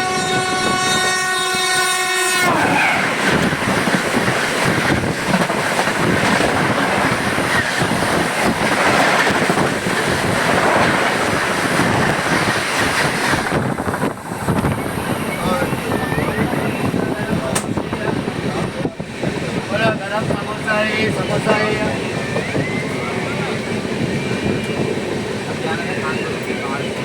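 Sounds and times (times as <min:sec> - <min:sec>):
train horn: 0:00.0 - 0:03.6
train wheels clattering on rails: 0:03.0 - 0:27.0.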